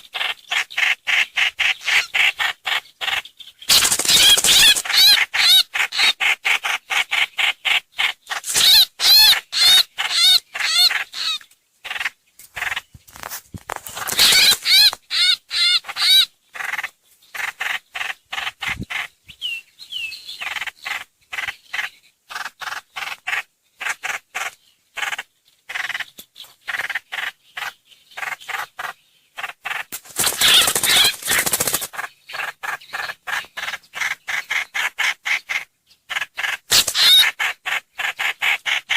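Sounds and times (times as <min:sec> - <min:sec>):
quick warbling birdsong: 0:00.0 - 0:06.2, 0:13.8 - 0:23.2, 0:25.0 - 0:38.4
songbird chattering calls: 0:00.0 - 0:13.0, 0:13.9 - 0:38.9.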